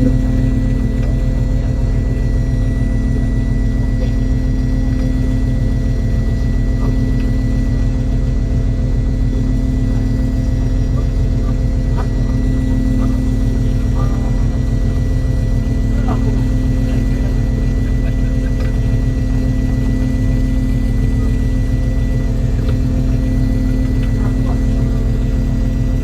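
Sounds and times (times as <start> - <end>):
boat engine rumbling: 0.0 - 26.0.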